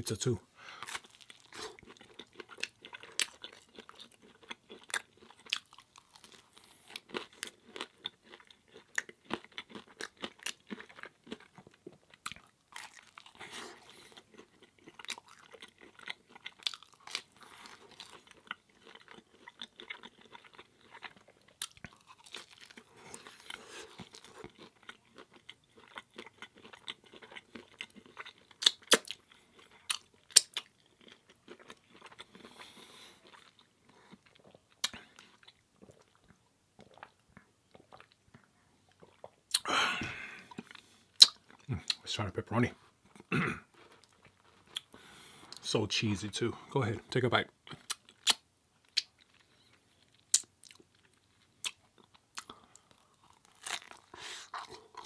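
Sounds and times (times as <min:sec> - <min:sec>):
chewing crunchy crust: 0:00.2 - 0:45.7, 0:47.0 - 0:55.0
wet mouth clicks: 0:41.2 - 0:42.0.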